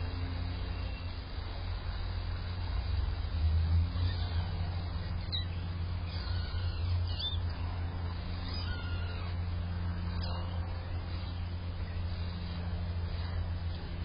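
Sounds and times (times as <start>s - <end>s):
low traffic rumble: 0.0s - 14.0s
kittens mewing: 3.9s - 10.6s.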